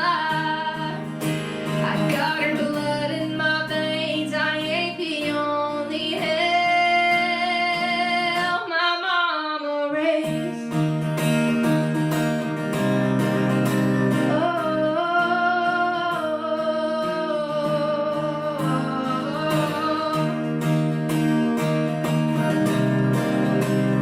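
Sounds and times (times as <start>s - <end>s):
woman singing: 0.0s - 10.8s, 14.1s - 20.9s
acoustic guitar strumming: 0.0s - 24.0s.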